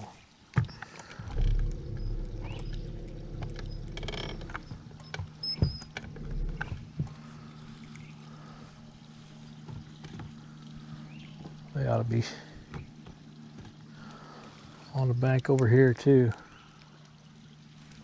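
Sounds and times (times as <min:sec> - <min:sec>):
small boat motor humming: 0:00.6 - 0:18.0.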